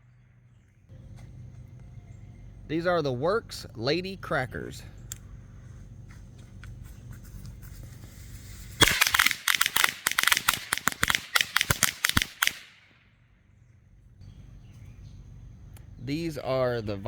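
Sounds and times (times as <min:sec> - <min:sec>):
firecrackers going off: 0:07.8 - 0:12.8.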